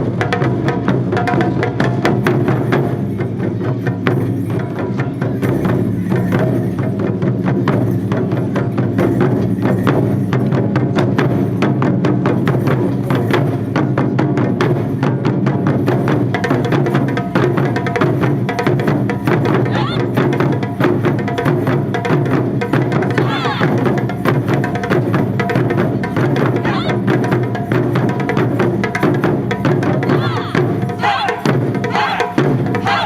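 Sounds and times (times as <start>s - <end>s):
taiko drum ensemble playing: 0.0s - 33.0s.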